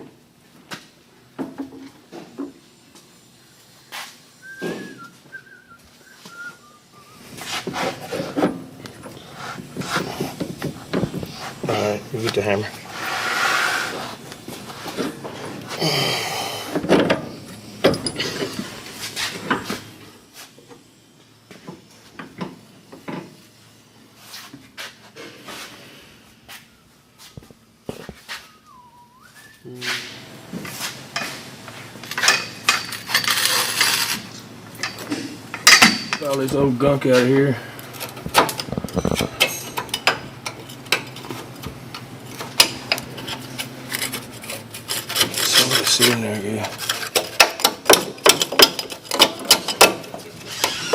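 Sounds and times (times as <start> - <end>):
hand tools clanking on steel: 32.0 - 34.1, 34.8 - 36.6, 38.0 - 41.4
metal hand tools clicking and scraping: 32.0 - 36.5, 42.4 - 50.9.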